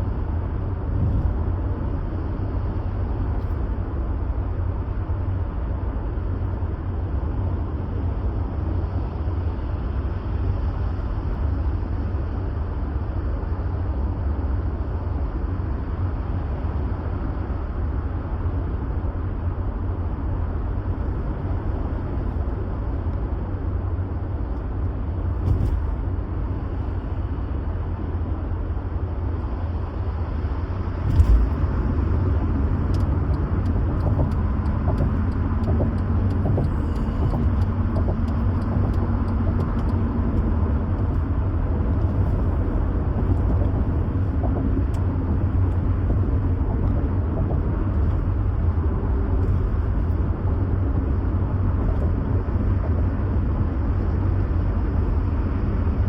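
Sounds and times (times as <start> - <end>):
car road and engine rumble: 0.0 - 56.0
sharp thump: 1.0 - 1.4.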